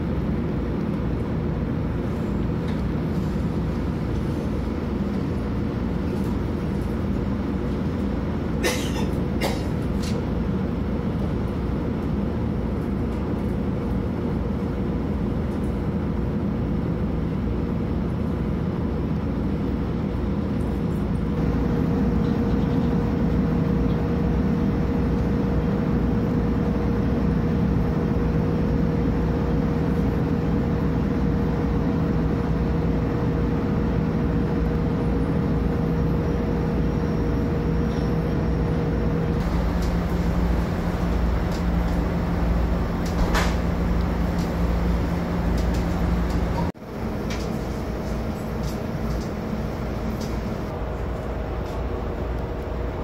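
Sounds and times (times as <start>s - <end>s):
train rumbling along track: 0.0s - 53.0s
steady whine: 35.7s - 53.0s.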